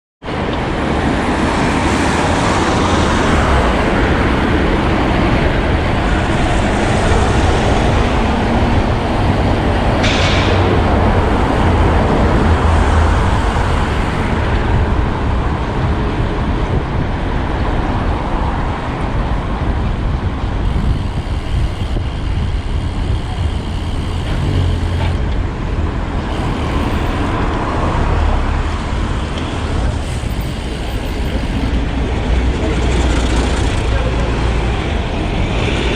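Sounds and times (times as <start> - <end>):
road and vehicle noise: 0.2 - 35.9
high-pitched squeal: 2.2 - 15.2, 20.6 - 34.8.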